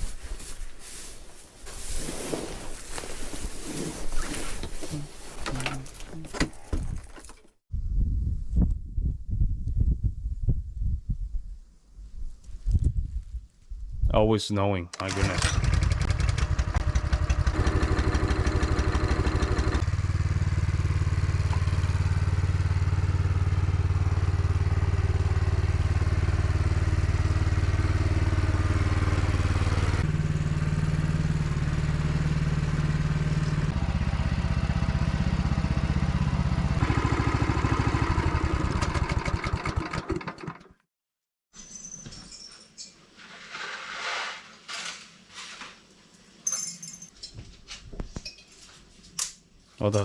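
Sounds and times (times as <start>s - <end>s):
small engine running: 15.1s - 40.8s.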